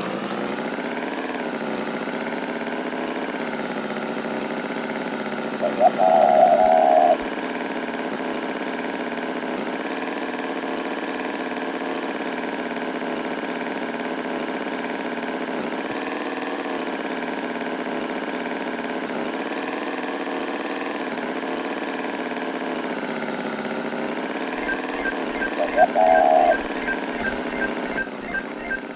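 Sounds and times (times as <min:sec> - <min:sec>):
tractor engine idling: 0:00.0 - 0:05.1, 0:24.4 - 0:28.9.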